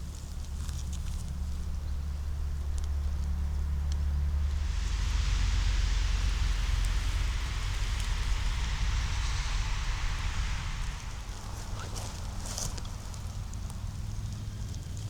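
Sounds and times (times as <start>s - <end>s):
low rumble: 0.0s - 15.0s
rushing noise: 3.5s - 15.0s.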